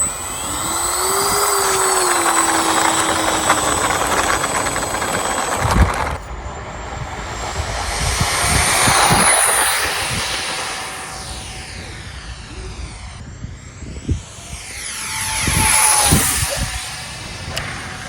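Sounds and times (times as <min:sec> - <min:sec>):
electric ducted fans whining: 0:00.0 - 0:18.0
rushing airflow: 0:00.0 - 0:18.0
wind rumble on microphone: 0:00.0 - 0:18.0.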